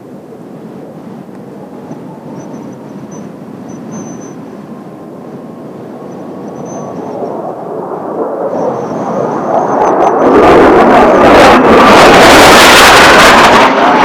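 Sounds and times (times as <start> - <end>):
jet aircraft approaching: 0.0 - 14.0.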